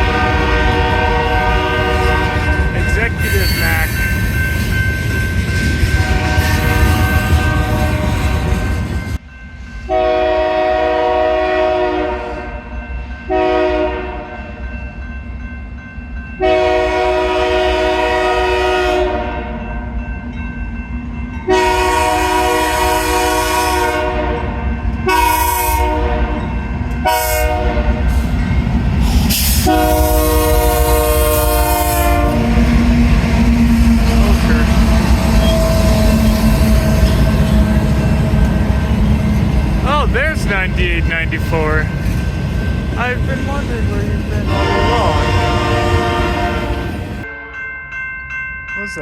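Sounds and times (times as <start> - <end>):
locomotive air horn blasts: 0.0 - 3.7, 6.0 - 8.8, 9.9 - 12.7, 13.3 - 14.4, 16.4 - 19.6, 21.5 - 28.1, 29.3 - 39.3, 44.5 - 47.6
train rumbling past: 0.0 - 47.7.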